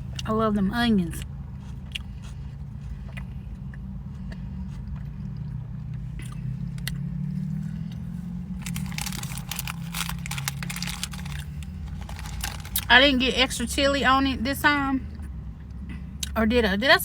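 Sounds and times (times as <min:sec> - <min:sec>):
low hum: 0:00.0 - 0:16.2
chewing and biting food: 0:01.2 - 0:13.0
crackling: 0:08.5 - 0:13.1.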